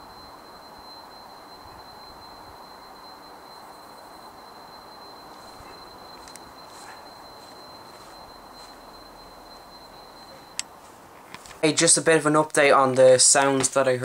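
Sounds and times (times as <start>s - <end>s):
faint high whine: 0.0s - 14.0s.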